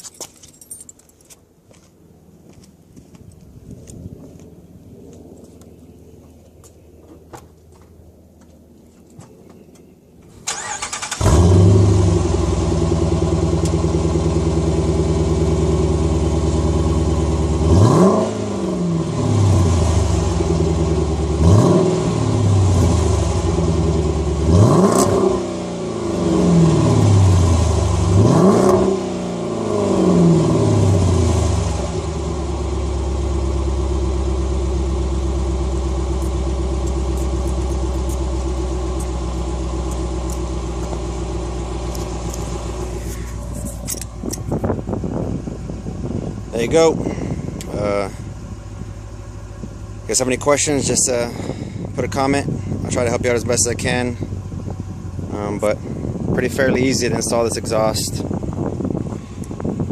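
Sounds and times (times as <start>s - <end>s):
car engine starting: 10.3s - 59.9s
car engine idling: 10.5s - 28.3s, 29.3s - 59.9s
car engine revving: 10.5s - 48.2s.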